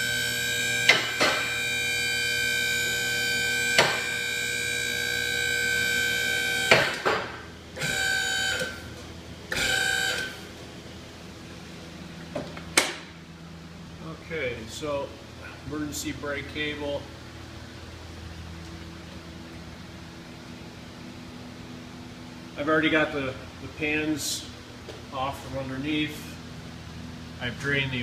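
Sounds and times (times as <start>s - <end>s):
car lift motor whining: 0.0s - 10.7s.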